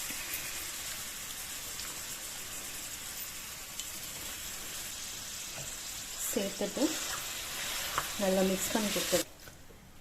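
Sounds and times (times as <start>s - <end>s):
spices sizzling in oil: 0.0s - 9.3s.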